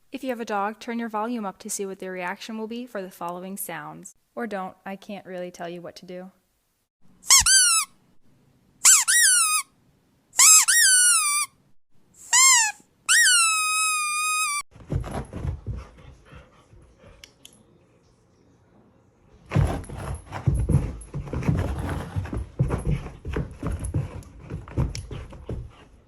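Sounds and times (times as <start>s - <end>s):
rubber squeaky toy squeaks: 7.3s - 7.9s, 8.8s - 9.7s, 10.4s - 11.6s, 12.2s - 14.7s
dog thumping and rustling: 14.7s - 16.6s, 19.5s - 26.0s.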